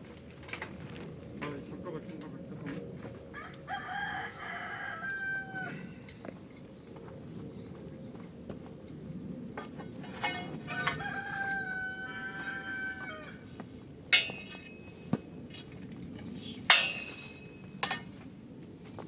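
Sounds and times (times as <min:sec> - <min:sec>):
rooster crowing: 0:03.3 - 0:06.1, 0:10.6 - 0:13.4.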